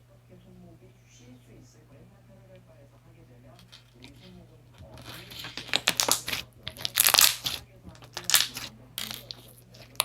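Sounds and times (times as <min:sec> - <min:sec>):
slime squeezed popping and crunching: 0:05.7 - 0:09.4.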